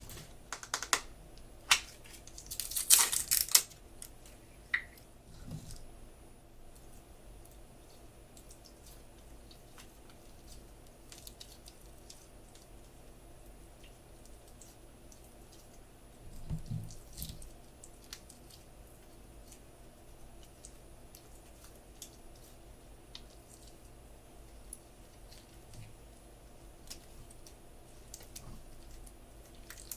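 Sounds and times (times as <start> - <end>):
slime squishing: 6.8 - 13.0, 13.6 - 29.9.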